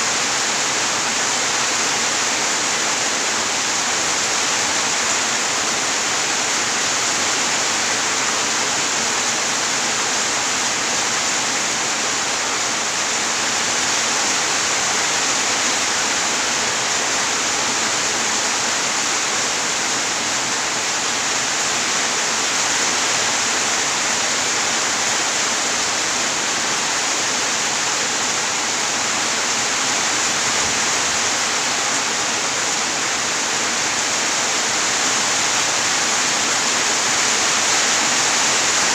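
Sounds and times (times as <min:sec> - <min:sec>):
heavy rain hissing: 0:00.0 - 0:38.9.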